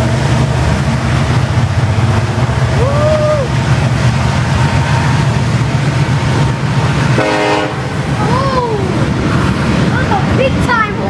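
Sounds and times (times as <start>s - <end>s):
freight train wheels rumbling: 0.0s - 11.0s
train horn blast: 7.0s - 8.0s.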